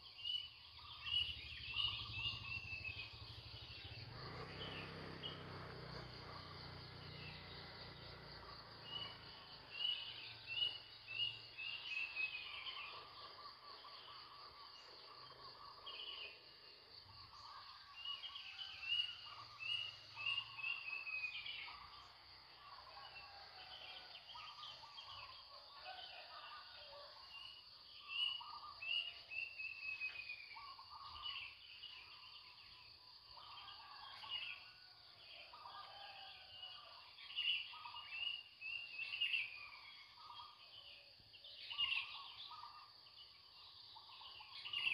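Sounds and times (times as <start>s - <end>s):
birds chirping: 0.0s - 23.4s.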